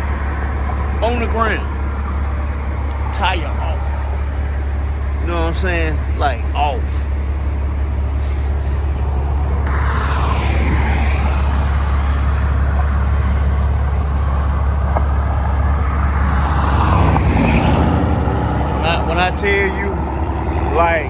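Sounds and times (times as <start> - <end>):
expressway traffic rumble: 0.0 - 21.0
vehicle passing close by: 7.4 - 21.0.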